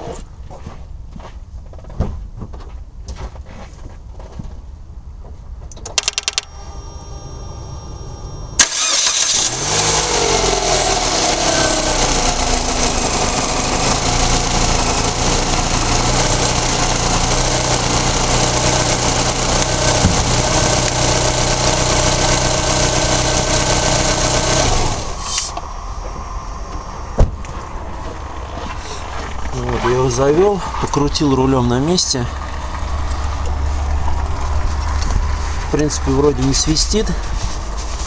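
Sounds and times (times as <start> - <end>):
starter clicks: 5.7 - 6.5
car engine idling: 6.0 - 38.0.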